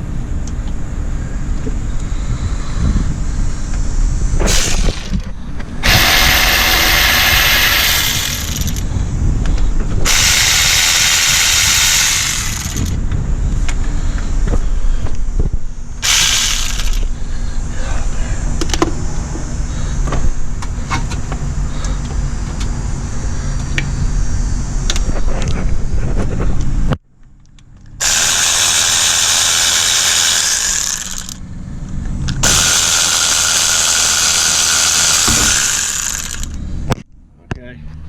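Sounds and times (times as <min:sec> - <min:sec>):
steady low hum: 0:00.0 - 0:38.0
hissing power tool: 0:04.4 - 0:08.8, 0:28.0 - 0:31.4, 0:32.4 - 0:36.6.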